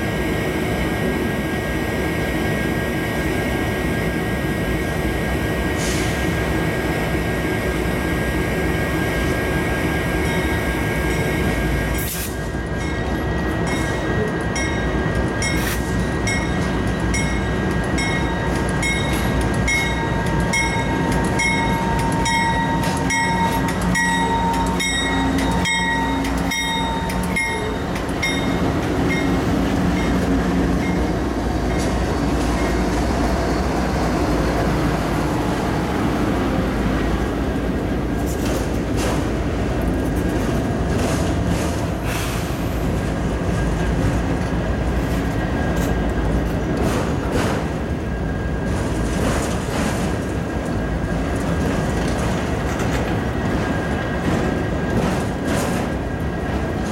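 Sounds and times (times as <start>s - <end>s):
locomotive engine droning: 0.0s - 56.9s
train cars rumbling: 0.0s - 56.9s
train bell ringing: 10.1s - 12.0s, 12.6s - 32.9s.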